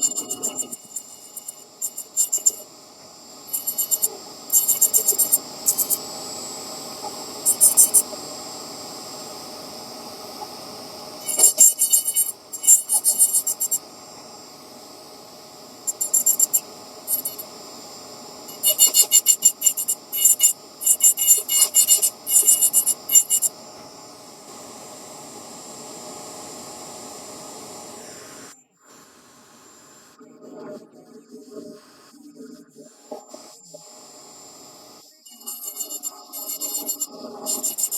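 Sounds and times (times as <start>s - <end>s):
rotary tool grinding: 0.0s - 2.6s, 3.5s - 6.0s, 7.5s - 8.0s, 11.2s - 13.8s, 15.9s - 17.4s, 18.5s - 23.5s, 35.3s - 37.9s.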